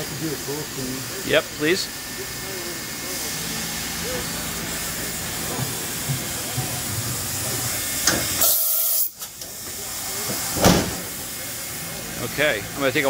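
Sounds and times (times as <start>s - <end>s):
high-pitched hiss blast: 8.1s - 9.2s.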